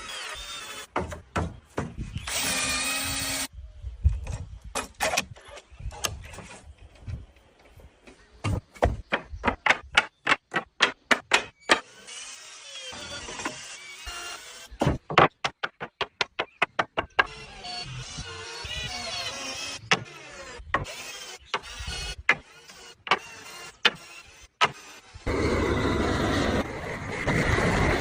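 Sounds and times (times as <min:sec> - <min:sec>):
power tool running: 0:02.2 - 0:03.5.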